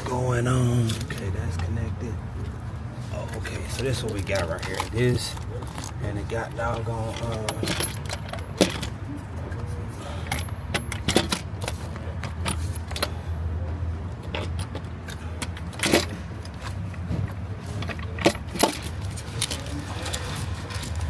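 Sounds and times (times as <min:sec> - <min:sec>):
tools clinking on engine parts: 0:03.2 - 0:09.0, 0:10.0 - 0:13.2, 0:14.1 - 0:21.0.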